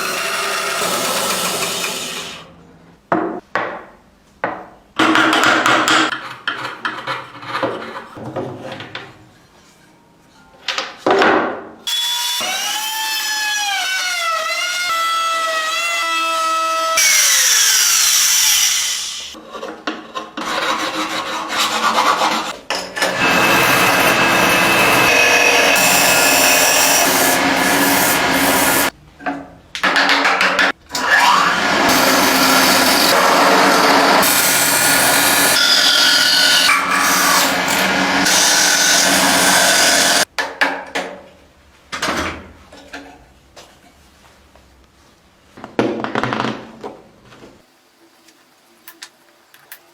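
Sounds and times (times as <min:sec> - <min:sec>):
power tool grinding wood: 0:00.0 - 0:02.4, 0:31.1 - 0:40.2.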